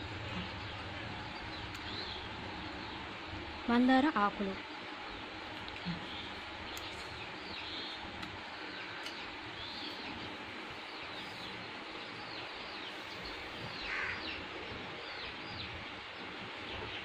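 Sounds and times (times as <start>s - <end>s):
background hiss: 0.0s - 17.0s
birds chirping: 0.0s - 17.0s.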